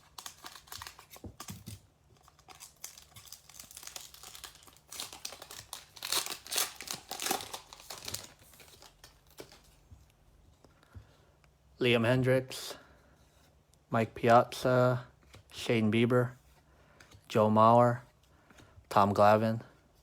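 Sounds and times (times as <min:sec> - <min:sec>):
foil wrapper crinkling and tearing: 0:00.0 - 0:09.7.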